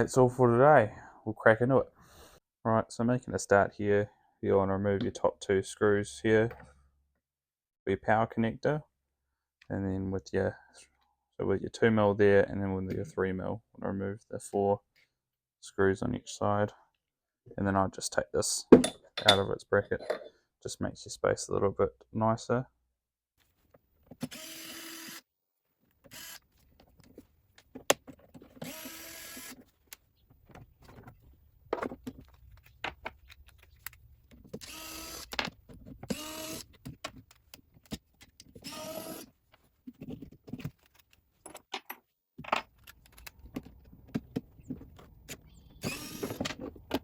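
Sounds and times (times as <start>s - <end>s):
impact driver whirring: 26.1s - 26.4s, 28.6s - 29.6s, 34.6s - 35.3s, 36.1s - 36.7s, 38.6s - 39.3s, 45.8s - 46.4s
clicks and knocks of small parts: 31.7s - 36.1s, 39.9s - 45.5s.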